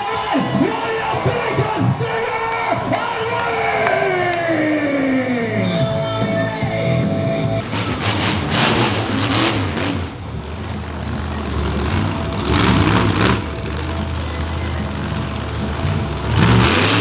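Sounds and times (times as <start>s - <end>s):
truck engine revving: 7.2s - 17.0s.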